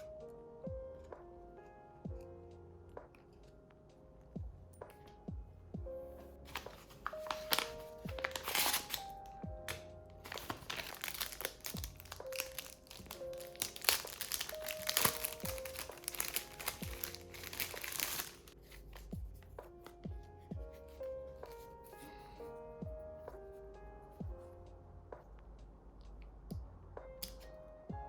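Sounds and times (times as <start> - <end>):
soft background music: 0.0 - 28.0
plastic packaging crinkling: 6.5 - 19.1.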